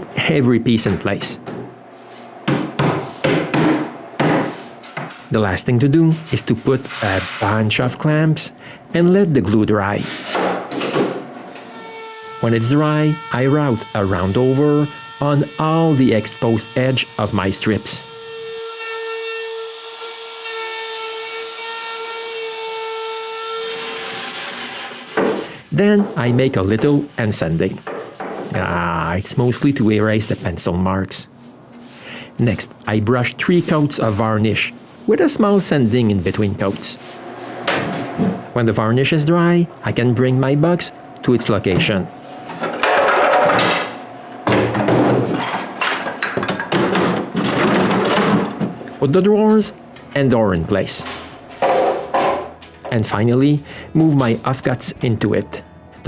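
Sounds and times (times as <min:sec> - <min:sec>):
router cutting wood hiss: 0:11.5 - 0:23.8
router motor whine: 0:11.6 - 0:23.3.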